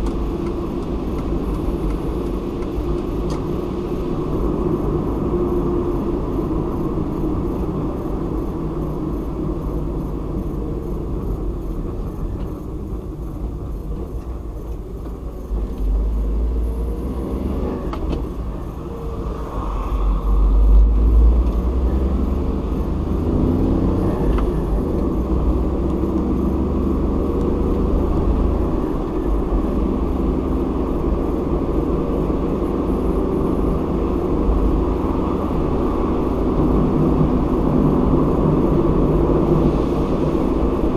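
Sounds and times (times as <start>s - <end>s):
car engine and road noise: 0.0s - 40.9s.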